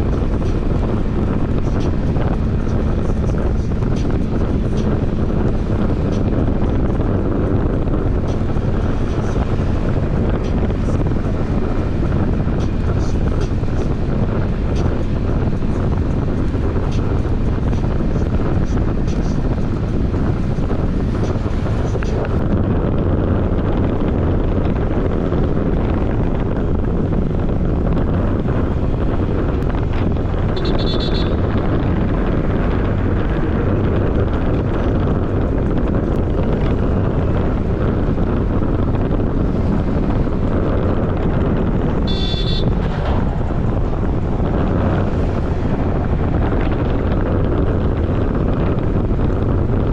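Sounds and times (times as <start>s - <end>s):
scooter engine and road noise: 0.0s - 49.9s
wind buffeting microphone: 0.0s - 49.9s.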